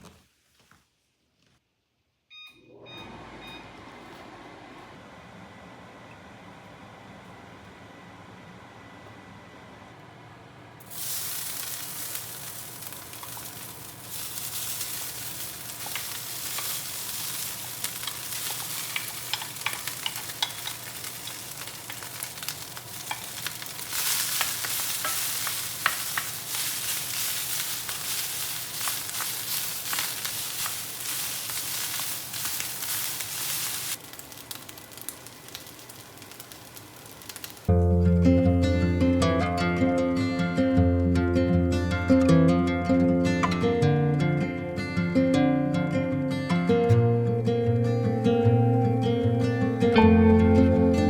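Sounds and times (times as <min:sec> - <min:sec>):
rice sizzling in a hot pan: 0:10.8 - 0:37.7
spatula clicking and scraping: 0:17.8 - 0:33.5.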